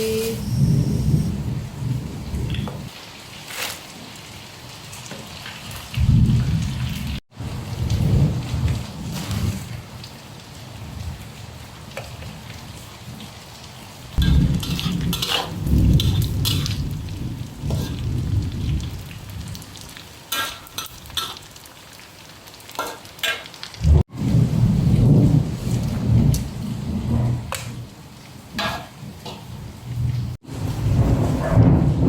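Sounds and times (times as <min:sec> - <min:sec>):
thunder rumbling: 0:00.0 - 0:02.9, 0:05.9 - 0:10.1, 0:14.2 - 0:21.2, 0:23.8 - 0:32.0
heavy rain: 0:00.0 - 0:32.0.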